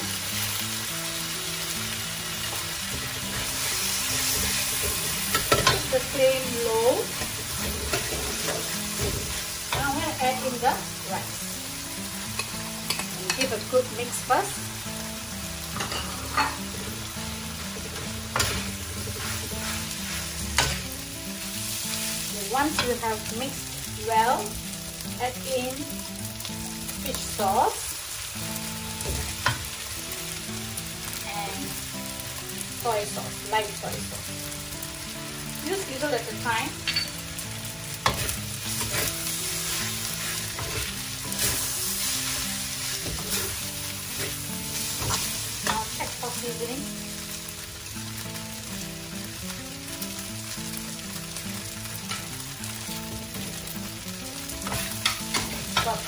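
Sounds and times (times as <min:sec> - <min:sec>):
background music with held notes: 0:00.0 - 0:56.0
rice sizzling in a wok: 0:00.0 - 0:56.0
spatula scraping a wok: 0:02.5 - 0:10.4, 0:15.7 - 0:21.0, 0:37.9 - 0:46.4, 0:54.5 - 0:56.0
spatula clanking on wok: 0:04.3 - 0:06.1, 0:12.3 - 0:13.7, 0:15.7 - 0:16.8, 0:17.8 - 0:19.8, 0:36.8 - 0:37.2, 0:38.0 - 0:39.2, 0:54.4 - 0:56.0.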